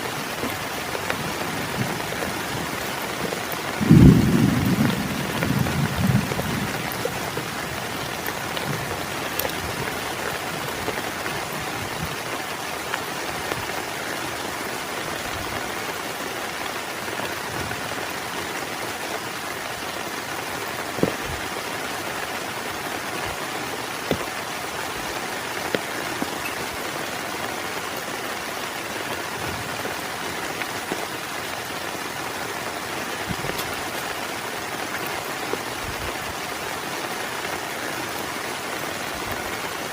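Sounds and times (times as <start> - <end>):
heavy rain falling: 0.0 - 39.9
thunder rumble: 1.2 - 10.0.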